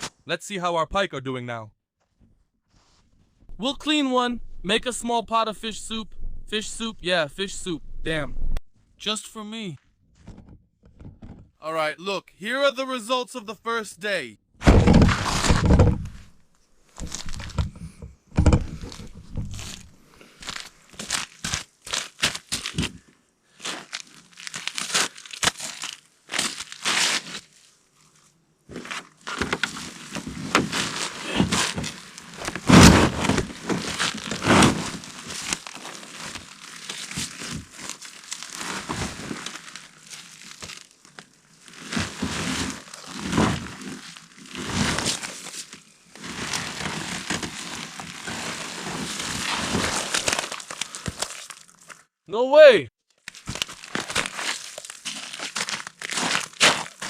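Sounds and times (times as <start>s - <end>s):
crinkling and crunching rustles: 14.6s - 52.1s, 53.1s - 57.0s.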